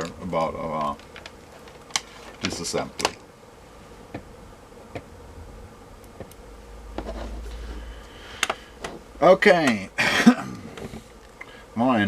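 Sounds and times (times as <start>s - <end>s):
faint steady hum: 0.0s - 12.0s
handling clicks and taps: 9.6s - 9.8s.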